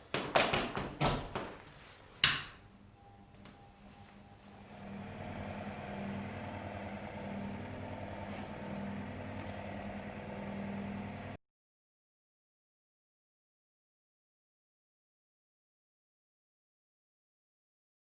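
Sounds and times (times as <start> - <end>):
electric fan motor humming: 2.8 - 11.4.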